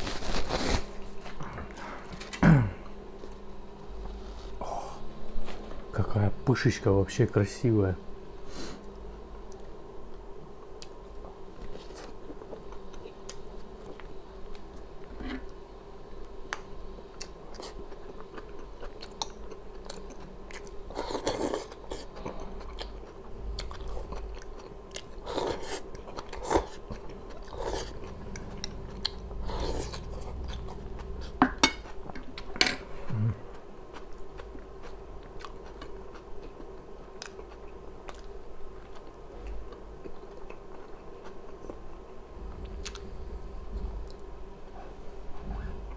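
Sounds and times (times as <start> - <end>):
faint steady hum: 0.0 - 45.9
person chewing food: 9.5 - 15.6, 16.5 - 41.9, 42.6 - 43.1.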